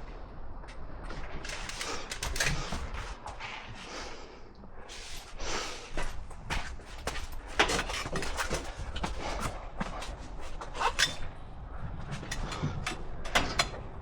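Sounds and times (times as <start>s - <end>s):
tools knocking and clicking: 12.2s - 13.9s.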